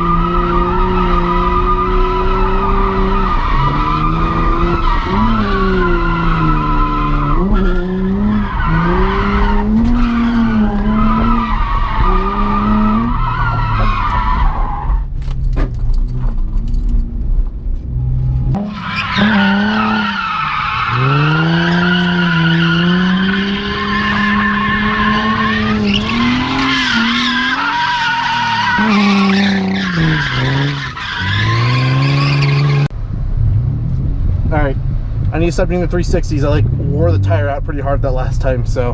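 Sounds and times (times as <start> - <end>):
car engine revving: 0.0 - 38.9
tyres squealing: 18.6 - 32.9.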